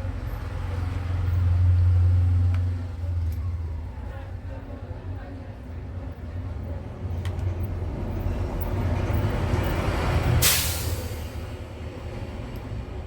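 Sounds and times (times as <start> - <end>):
vehicle engine rumble: 0.0 - 13.0
sudden loud hiss: 10.4 - 11.3.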